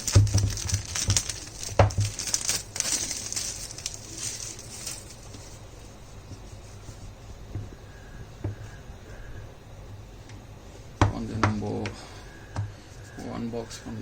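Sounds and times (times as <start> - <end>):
packaging crinkling and rustling: 0.0 - 6.0.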